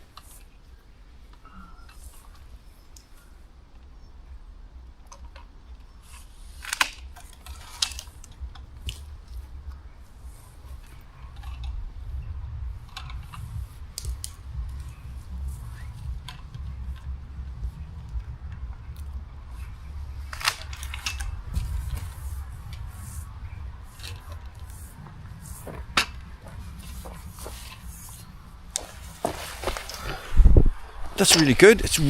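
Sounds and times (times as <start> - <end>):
steady low rumble: 3.5 - 32.0
pole saw clicks and snaps: 6.2 - 9.1.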